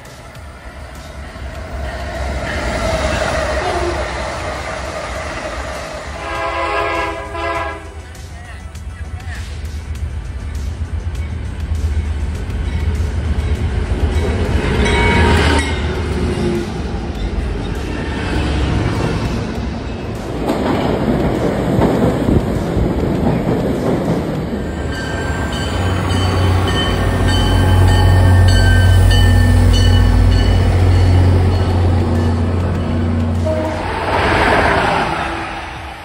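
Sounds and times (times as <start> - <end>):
diesel locomotive approaching: 0.0 - 36.0
locomotive engine humming: 0.0 - 36.0
subway train rushing past: 0.0 - 36.0.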